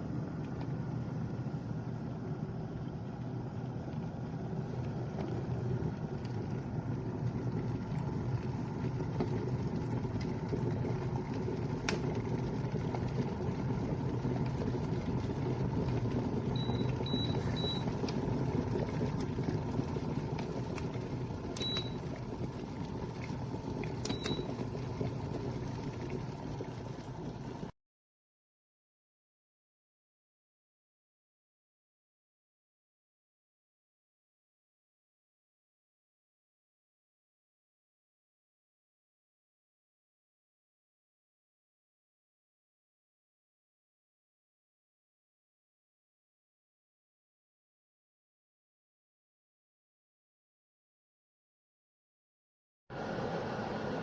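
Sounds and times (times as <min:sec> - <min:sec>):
kettle water heating: 0:00.0 - 0:27.7, 0:52.9 - 0:54.0.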